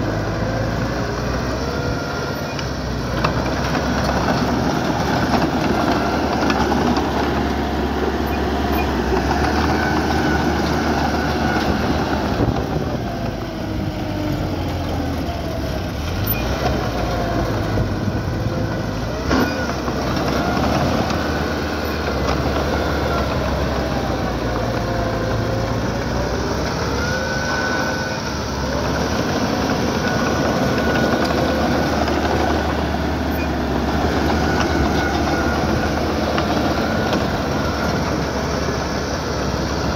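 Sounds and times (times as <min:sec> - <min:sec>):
bulldozer diesel engine: 0:00.0 - 0:39.9
steel tracks clanking and squealing: 0:08.2 - 0:12.5, 0:16.0 - 0:17.8, 0:19.2 - 0:23.8.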